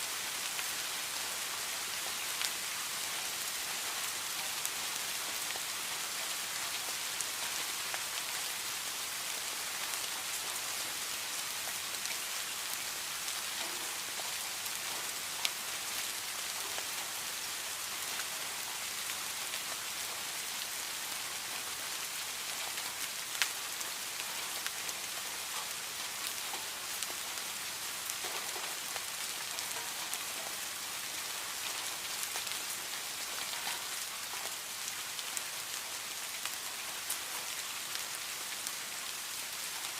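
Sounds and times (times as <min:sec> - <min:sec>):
steady rain hiss: 0:00.0 - 0:39.9
raindrop ticks: 0:13.6 - 0:14.2, 0:31.7 - 0:34.6.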